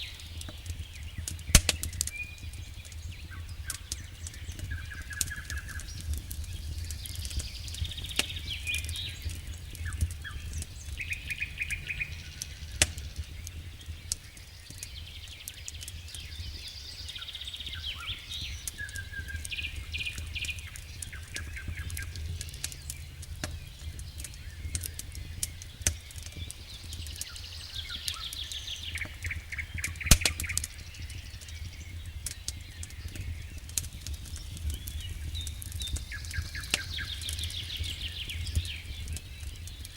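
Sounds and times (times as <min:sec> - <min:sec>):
songbirds singing: 0:00.0 - 0:39.9
wood fire crackling and popping: 0:00.0 - 0:39.9
low steady rumble: 0:02.7 - 0:14.6, 0:18.4 - 0:30.0.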